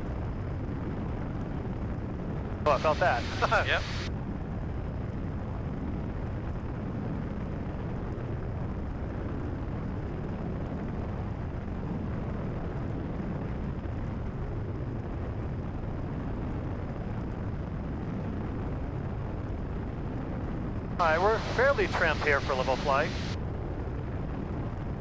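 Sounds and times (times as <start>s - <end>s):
airplane engine and propeller droning: 0.0s - 25.0s.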